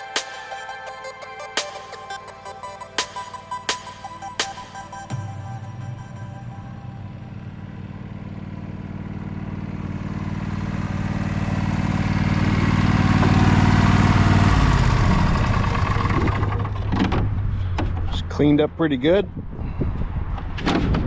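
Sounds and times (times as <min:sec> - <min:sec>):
lawn tractor engine: 0:07.1 - 0:18.1.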